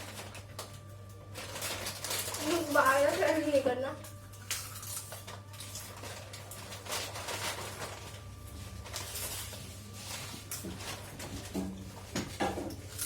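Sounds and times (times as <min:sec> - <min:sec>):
people crunching snacks: 0:00.0 - 0:11.4.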